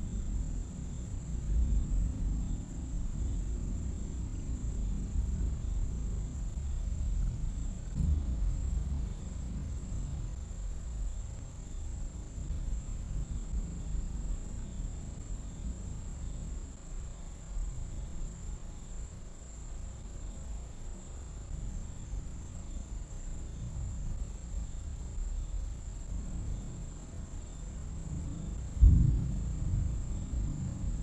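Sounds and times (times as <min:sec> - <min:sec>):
night insects trilling: 0:00.0 - 0:31.0
distant thunder rumbling: 0:00.3 - 0:11.1, 0:27.7 - 0:31.0.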